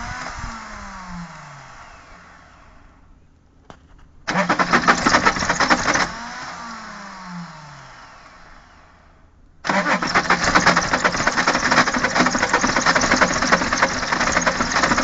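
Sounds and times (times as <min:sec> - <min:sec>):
starter whine winding down: 0:00.0 - 0:03.1, 0:04.3 - 0:09.1, 0:09.7 - 0:15.0
engine cranking on starter: 0:04.3 - 0:07.5, 0:09.6 - 0:15.0.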